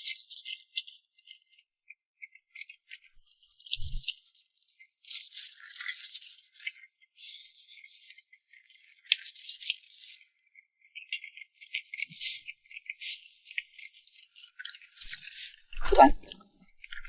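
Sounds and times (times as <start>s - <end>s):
crisp crackling while eating: 3.4s - 17.0s.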